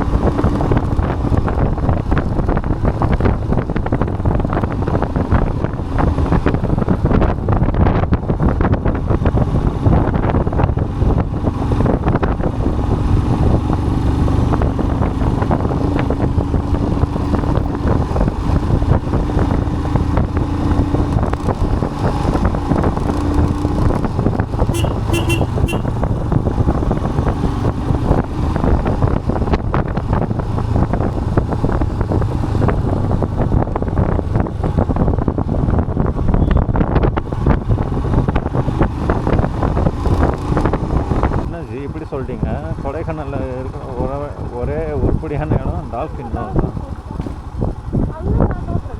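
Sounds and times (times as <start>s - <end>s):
vehicle road noise rumble: 0.0s - 48.9s
wind buffeting microphone: 0.0s - 48.9s
short horn beeps: 24.7s - 25.9s.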